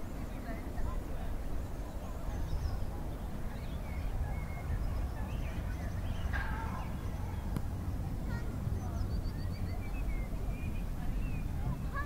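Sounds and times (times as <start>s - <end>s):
steady low rumble: 0.0s - 12.0s
small bird chirps: 8.8s - 12.0s.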